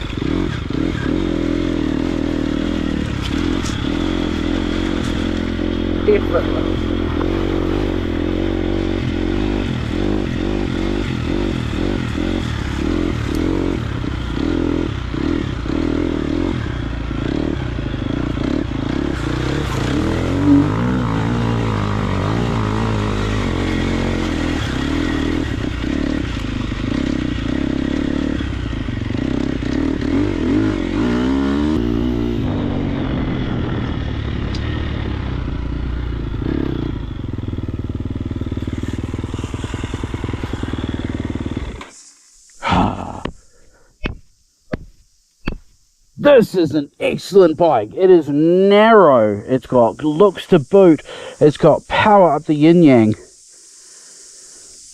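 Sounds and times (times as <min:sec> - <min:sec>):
motorcycle engine revving: 0:00.0 - 0:43.8, 0:47.0 - 0:54.9
sharp knock: 0:44.0 - 0:45.7.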